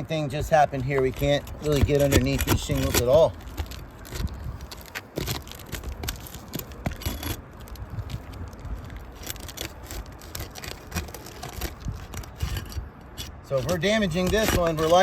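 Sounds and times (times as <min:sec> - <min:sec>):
shingles crackling: 0:00.2 - 0:15.0
metal bar scraping shingles: 0:00.8 - 0:07.5, 0:09.2 - 0:15.0.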